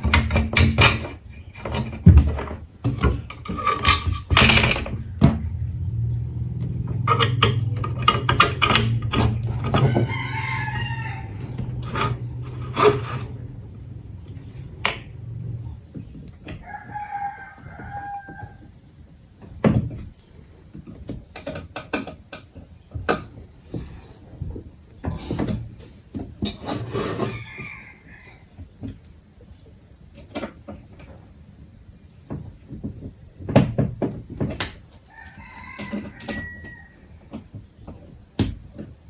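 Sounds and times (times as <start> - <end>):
sharp knocks and clicks: 0.0 - 5.8, 6.6 - 13.4, 17.7 - 26.8, 32.2 - 39.0
rooster crowing: 9.6 - 12.8, 16.5 - 18.7, 27.0 - 28.6, 35.0 - 37.3.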